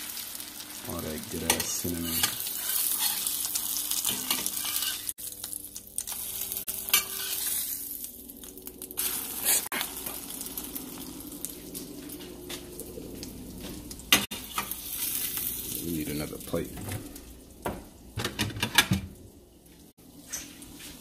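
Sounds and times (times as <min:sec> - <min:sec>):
bread sizzling in a pan: 0:00.0 - 0:18.2.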